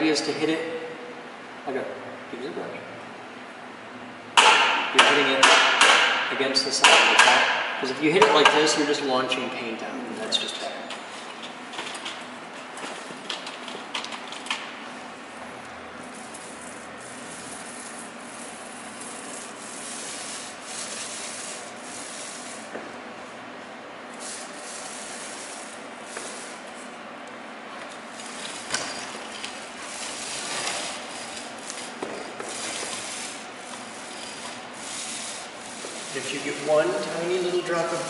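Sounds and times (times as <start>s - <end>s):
paintbrush scratching on wall: 16.1s - 22.8s, 24.2s - 26.9s, 29.6s - 38.0s.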